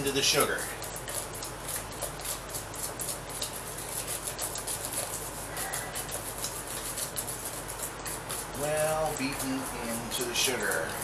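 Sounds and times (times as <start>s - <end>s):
wire whisk scraping metal bowl: 0.0s - 11.0s.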